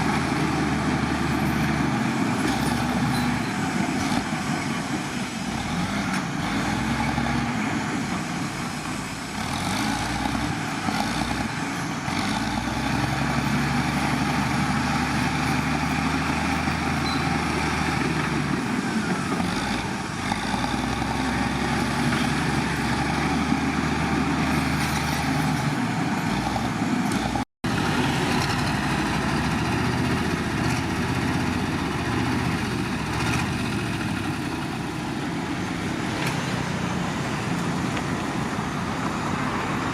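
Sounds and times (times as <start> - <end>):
heavy diesel engines droning: 0.0 - 39.9.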